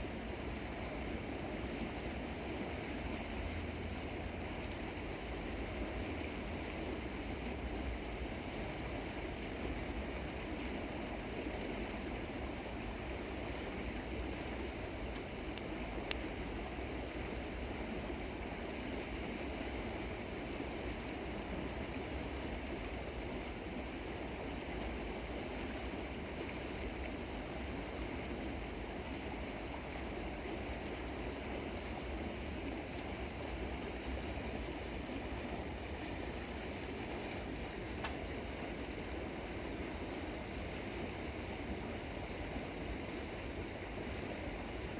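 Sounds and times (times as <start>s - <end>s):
river water flowing: 0.0s - 44.9s
faint sharp click: 15.6s - 16.2s, 38.0s - 38.2s.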